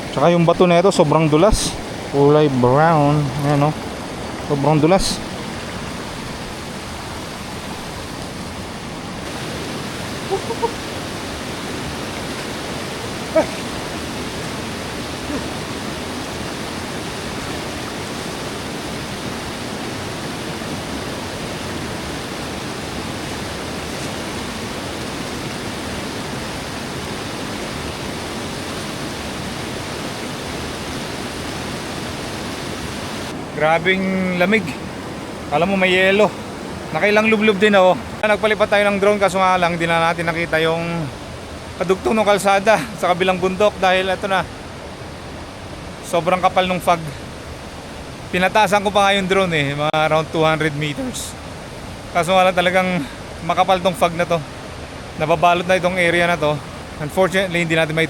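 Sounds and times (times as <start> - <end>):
river rushing over rocks: 0.0 - 40.5.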